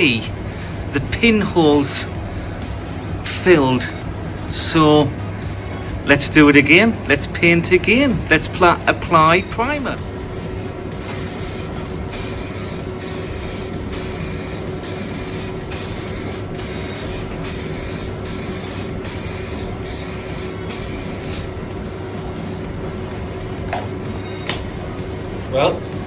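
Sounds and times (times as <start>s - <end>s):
spray gun hissing bursts: 10.9s - 21.6s.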